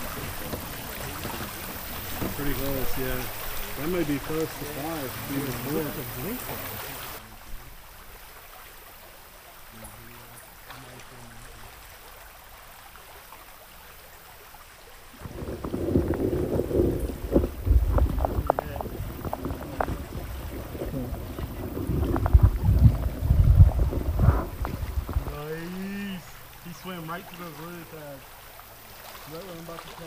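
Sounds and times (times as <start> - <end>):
sharp underwater clicks and knocks: 0.0 - 3.5, 15.2 - 25.4
underwater rumble of moving water: 0.0 - 8.3, 15.1 - 30.0
river ambience: 0.0 - 30.0.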